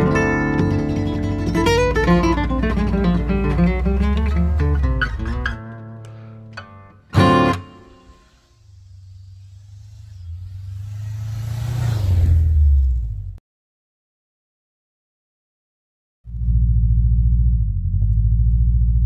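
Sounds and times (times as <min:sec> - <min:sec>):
acoustic guitar: 0:00.0 - 0:08.5
low rumble: 0:08.2 - 0:13.4, 0:16.3 - 0:19.0.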